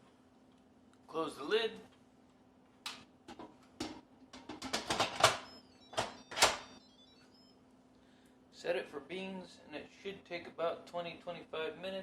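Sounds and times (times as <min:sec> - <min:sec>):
faint high electronic tones: 0:05.3 - 0:08.2.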